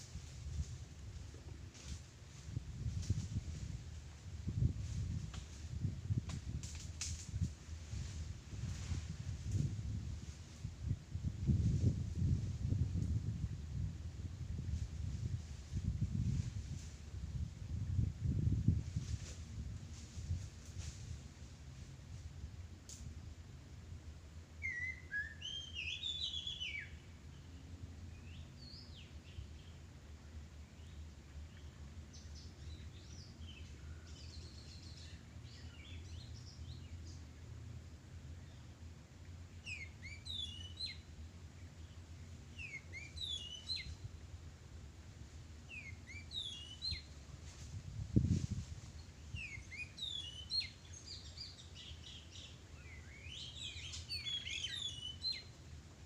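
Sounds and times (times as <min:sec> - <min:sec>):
low background rumble: 0:26.8 - 0:54.2
small birds chirping: 0:39.6 - 0:41.1, 0:41.8 - 0:44.0, 0:45.7 - 0:47.1, 0:49.0 - 0:55.5.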